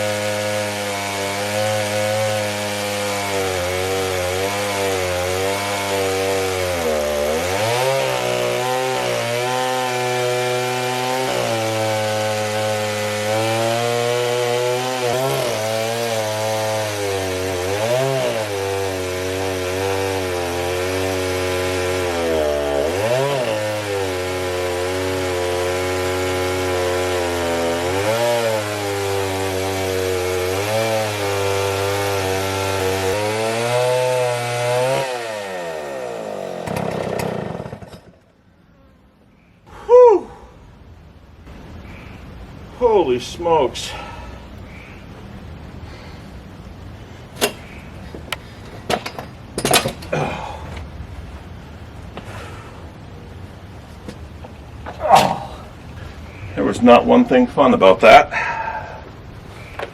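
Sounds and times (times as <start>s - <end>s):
chainsaw cutting log: 0.0s - 38.3s, 47.3s - 50.6s, 54.8s - 55.8s.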